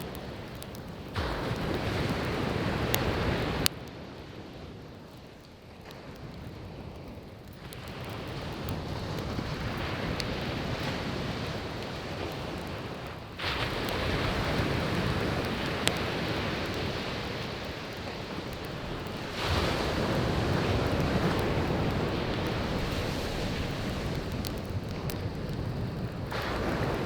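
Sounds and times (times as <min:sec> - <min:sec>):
firewood popping: 0:00.0 - 0:04.0, 0:05.1 - 0:27.0
sea waves breaking: 0:09.6 - 0:27.0.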